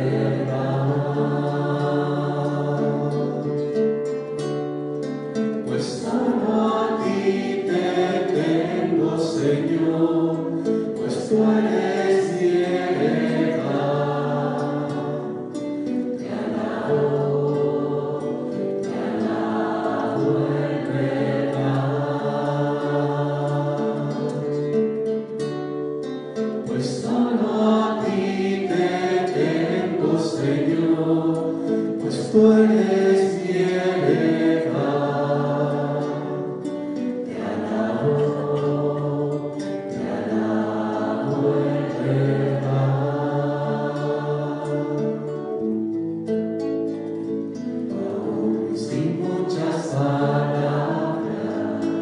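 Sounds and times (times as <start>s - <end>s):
choir singing worship song: 0.0s - 4.4s, 5.0s - 25.4s, 26.1s - 52.0s.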